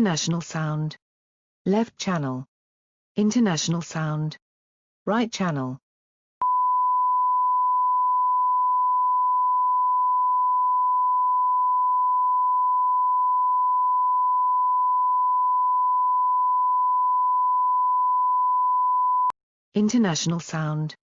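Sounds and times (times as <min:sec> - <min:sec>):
sine-wave tone: 0:06.4 - 0:19.3.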